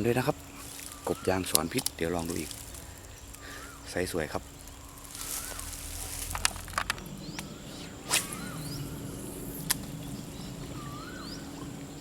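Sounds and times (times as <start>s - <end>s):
rising and falling bird call: 0.7s - 12.0s
sharp clicks: 6.2s - 8.5s.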